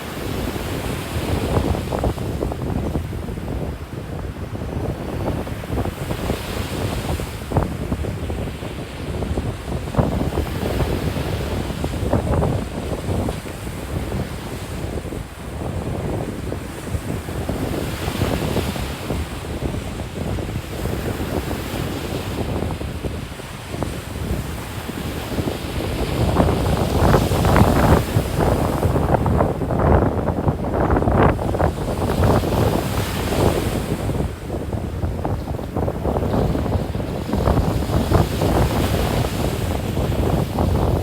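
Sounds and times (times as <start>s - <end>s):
wind gusting on microphone: 0.0s - 41.0s
surf breaking on beach: 4.6s - 41.0s.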